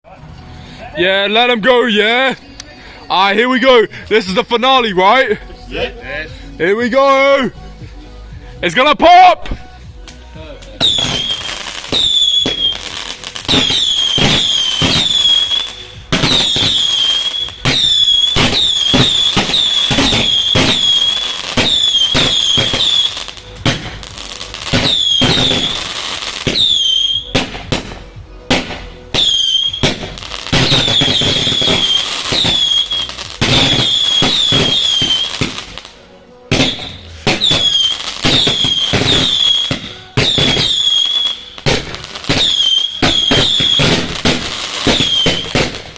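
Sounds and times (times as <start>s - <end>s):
firework whistles: 10.8s - 27.9s, 28.6s - 35.8s, 36.5s - 45.9s
firework bangs: 10.8s - 45.9s.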